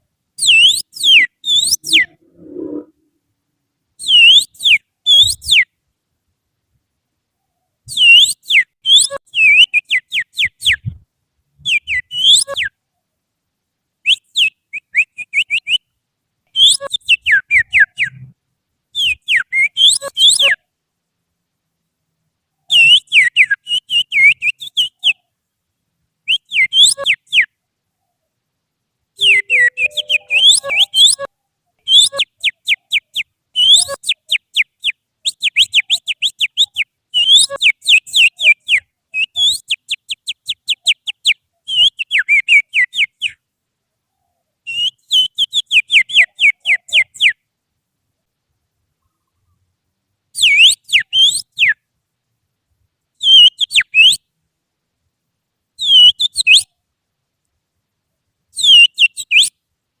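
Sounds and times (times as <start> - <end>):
finger whistling birdsong: 0.4 - 2.9, 4.0 - 5.7, 7.9 - 11.0, 11.7 - 12.8, 16.6 - 18.2, 26.3 - 27.5, 29.2 - 31.3, 31.9 - 43.4, 44.7 - 47.4, 50.4 - 51.8, 55.8 - 56.7, 58.6 - 59.5.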